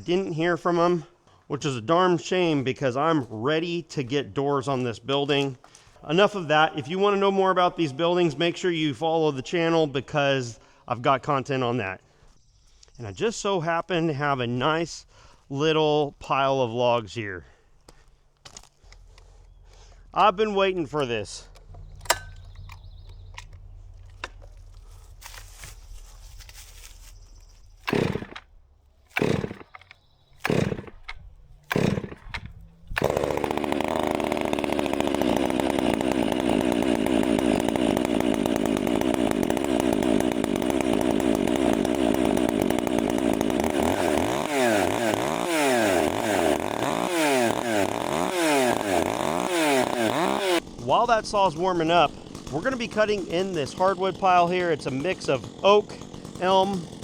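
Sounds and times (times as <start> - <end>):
chainsaw starter pulls: 18.5 - 57.0
chainsaw engine running and revving: 20.8 - 28.5, 29.1 - 29.8, 30.4 - 31.0, 31.6 - 57.0.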